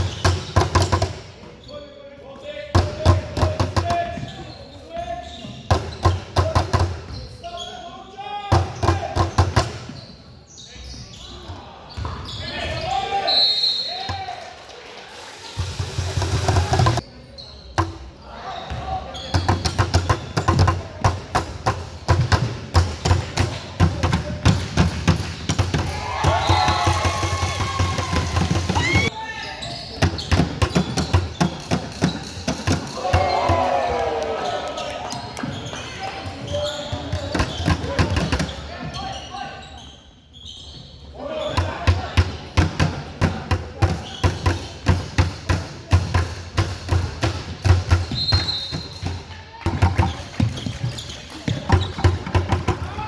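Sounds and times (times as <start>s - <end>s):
basketballs bouncing on court: 0.0s - 1.3s, 2.7s - 7.3s, 8.5s - 10.0s, 11.5s - 12.8s, 15.6s - 17.0s, 18.7s - 29.1s, 29.8s - 39.2s, 41.6s - 53.0s.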